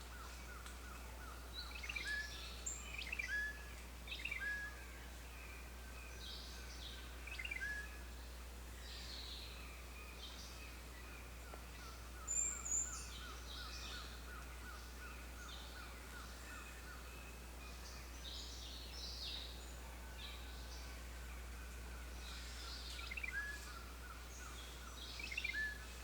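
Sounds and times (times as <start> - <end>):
birds calling and singing: 0.0 - 8.2, 8.8 - 26.0.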